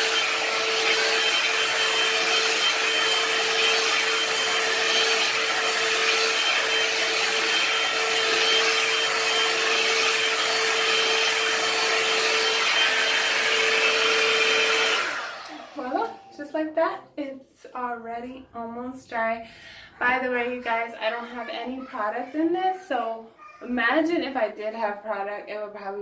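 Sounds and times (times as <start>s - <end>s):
hair dryer rushing air: 0.0s - 16.5s.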